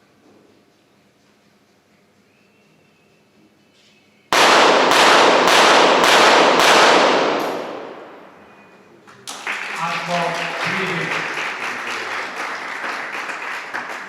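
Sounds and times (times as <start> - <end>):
pistol shots in rapid fire: 4.3 - 8.4.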